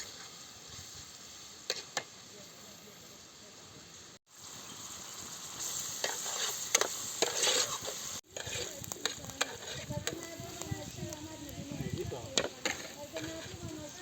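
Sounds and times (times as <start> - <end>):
food sizzling in a pan: 0.0 - 14.0
utensil scraping a pan: 1.6 - 2.1, 5.6 - 14.0.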